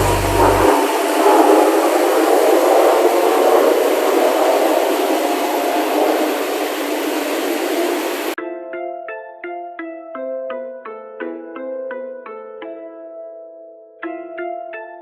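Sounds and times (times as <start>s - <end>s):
jet aircraft roar: 0.0s - 8.4s.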